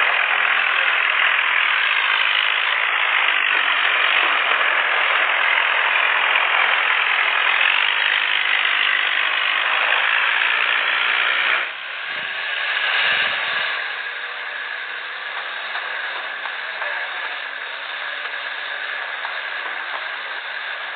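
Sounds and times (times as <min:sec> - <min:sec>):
tractor engines running under load: 0:00.0 - 0:20.9.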